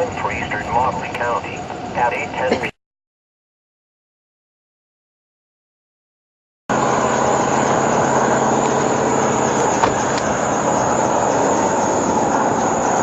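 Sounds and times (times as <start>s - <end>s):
car cabin road noise: 0.0s - 2.7s, 6.7s - 13.0s.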